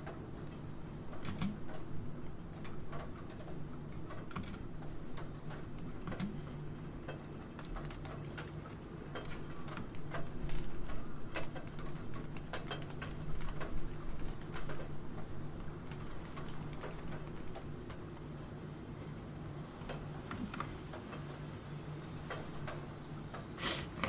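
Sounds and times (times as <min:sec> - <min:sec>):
rain: 0:00.0 - 0:24.0.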